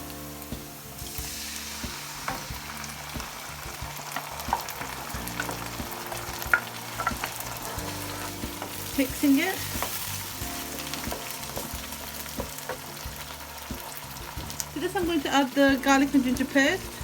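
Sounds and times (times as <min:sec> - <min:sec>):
food sizzling in a pan: 0:00.0 - 0:17.0
spoon scraping a pan: 0:04.1 - 0:13.0.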